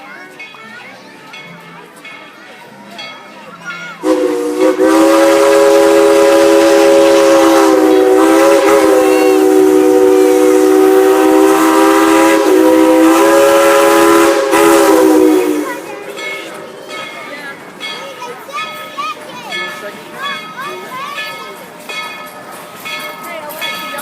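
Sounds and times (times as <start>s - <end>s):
steam locomotive whistle: 4.0s - 16.7s.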